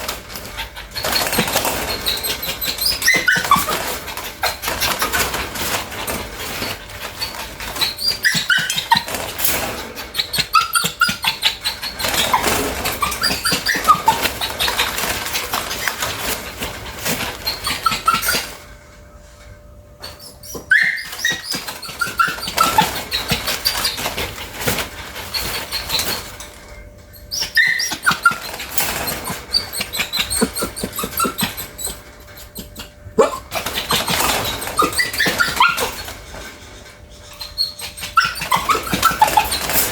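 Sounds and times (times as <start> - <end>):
dog whimpering: 0.0 - 9.4, 10.0 - 18.6, 20.0 - 26.5, 27.2 - 39.9.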